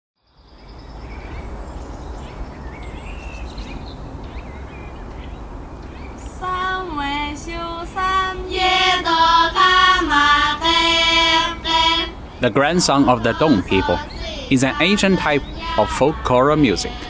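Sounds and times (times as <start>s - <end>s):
faint bird chirps: 0.2s - 6.4s, 13.8s - 15.8s
outdoor background noise: 0.2s - 17.0s
girls' choir singing: 6.3s - 17.0s.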